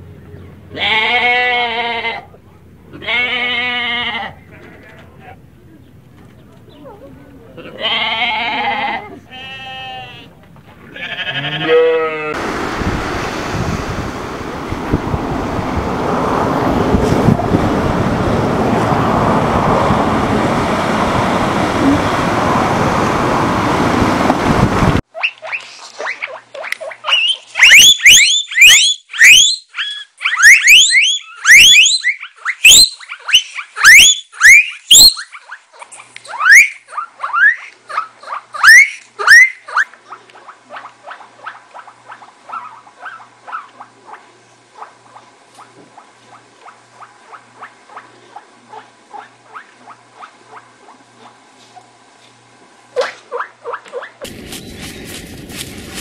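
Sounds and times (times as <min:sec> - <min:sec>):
goat bleating: 0:00.7 - 0:05.4, 0:07.6 - 0:12.4
guinea pigs wheeking: 0:25.1 - 0:51.4, 0:53.0 - 0:54.3
loud crackling rustle: 0:54.2 - 0:56.0.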